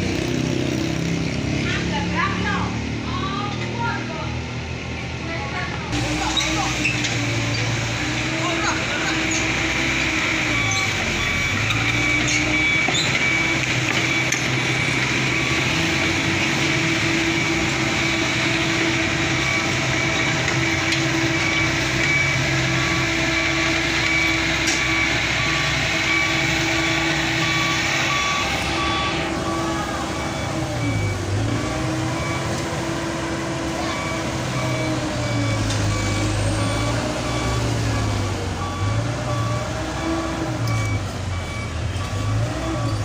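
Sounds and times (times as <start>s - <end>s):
diesel engine running: 0.0s - 43.0s
reversing alarm beeping: 6.0s - 32.9s, 33.7s - 43.0s.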